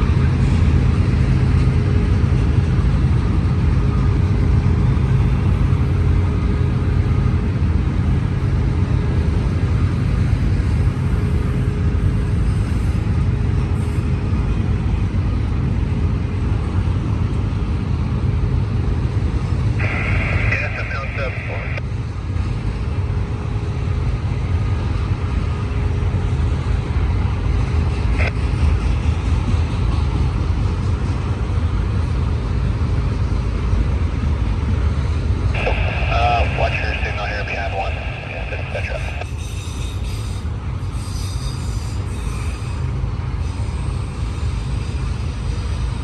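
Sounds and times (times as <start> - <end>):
train wheels rumbling on rails: 0.0 - 20.5, 21.4 - 46.0
high wheel squeal: 39.3 - 45.3.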